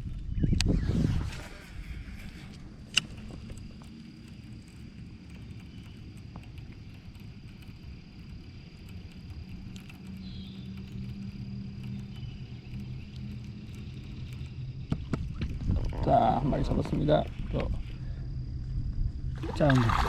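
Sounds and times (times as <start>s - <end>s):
high insect whine: 0.0s - 20.0s
low motor hum: 0.0s - 20.0s
bird chirp: 10.1s - 15.4s.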